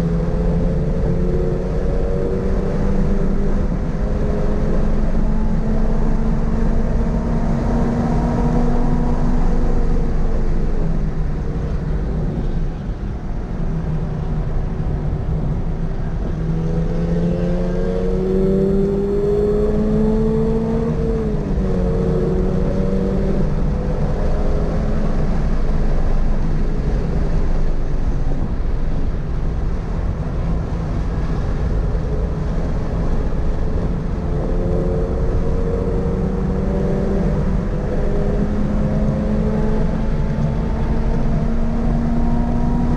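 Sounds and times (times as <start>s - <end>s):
road and wind rumble: 0.0s - 42.9s
car engine revving: 16.1s - 28.9s, 30.0s - 42.9s.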